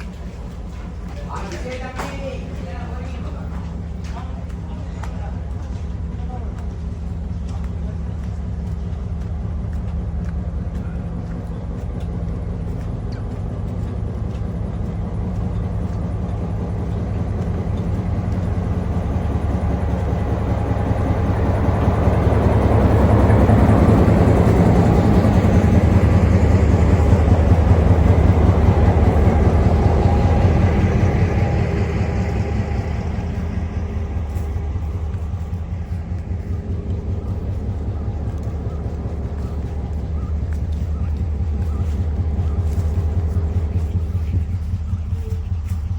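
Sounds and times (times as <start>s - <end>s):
train rumbling: 0.0s - 45.9s.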